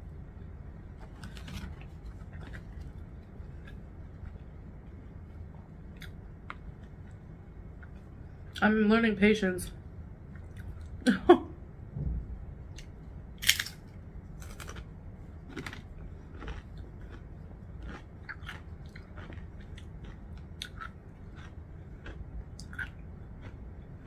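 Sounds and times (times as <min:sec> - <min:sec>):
crunching chips: 0:13.4 - 0:23.6.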